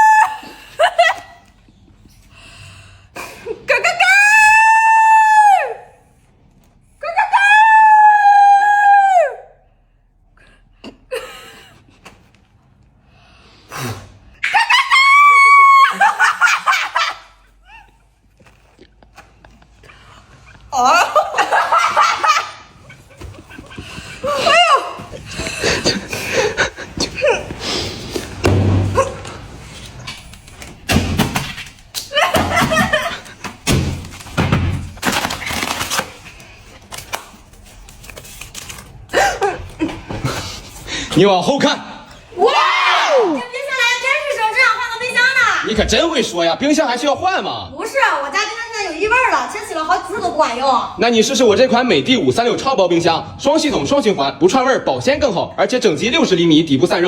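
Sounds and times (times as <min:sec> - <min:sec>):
heavy thud: 0:28.4 - 0:29.2.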